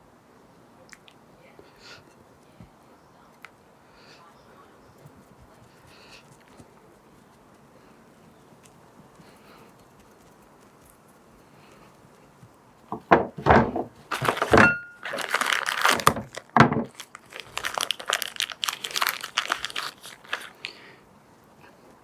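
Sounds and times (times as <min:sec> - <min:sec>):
crinkling and rustling: 0:05.0 - 0:20.8.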